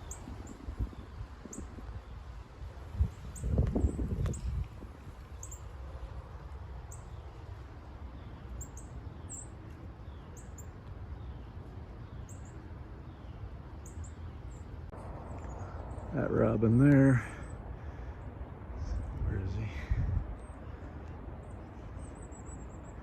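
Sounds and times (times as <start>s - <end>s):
wind rumble on microphone: 0.0s - 8.3s, 17.0s - 23.0s
small birds chirping: 0.0s - 23.0s.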